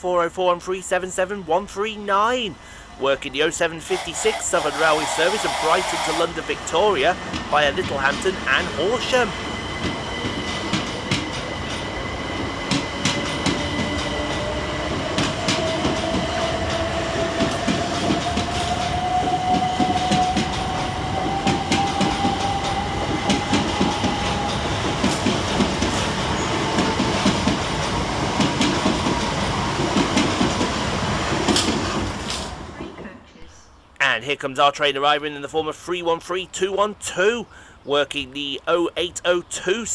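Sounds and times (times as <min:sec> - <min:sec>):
train traction motor whine: 0:03.7 - 0:07.4.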